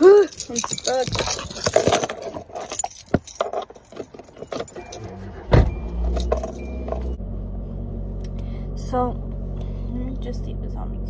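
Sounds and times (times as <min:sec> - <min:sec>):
car keys jangling: 0:00.0 - 0:07.2
car engine starting and idling: 0:04.3 - 0:11.0.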